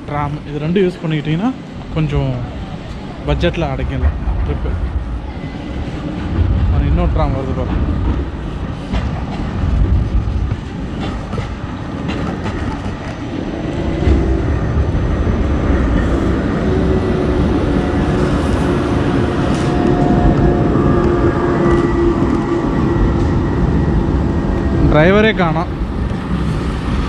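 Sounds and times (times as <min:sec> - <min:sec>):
tram rumbling on rails: 0:00.0 - 0:27.0.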